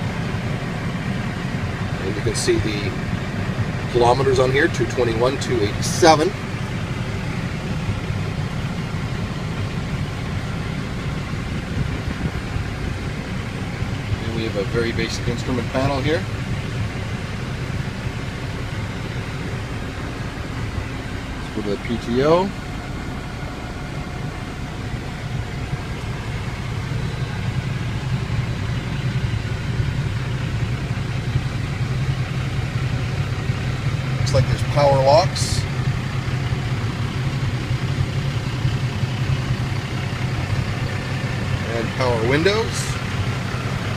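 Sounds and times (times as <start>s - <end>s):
diesel engine idling: 0.0s - 43.9s.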